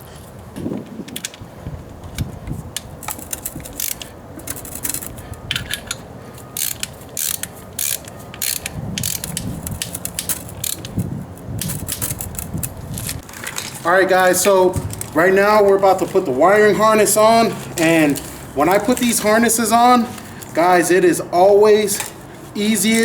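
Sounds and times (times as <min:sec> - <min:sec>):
ratchet wrench clicking: 0:02.8 - 0:06.0, 0:06.6 - 0:12.8.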